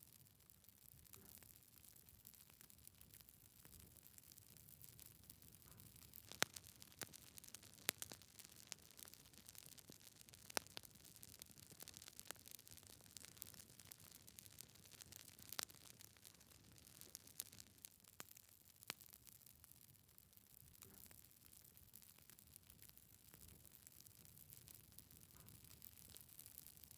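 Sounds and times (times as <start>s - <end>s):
wood fire crackling: 0.0s - 26.9s
burning logs popping: 1.0s - 19.8s.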